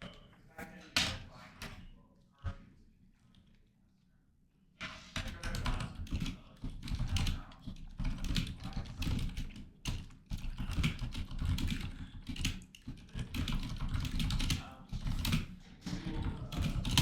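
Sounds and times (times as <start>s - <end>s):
rapid typing on keyboard: 5.2s - 17.0s.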